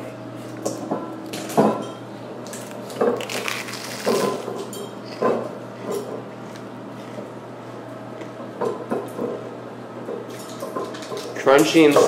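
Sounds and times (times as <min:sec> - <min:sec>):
person chewing crunchy toast: 0:02.6 - 0:04.5.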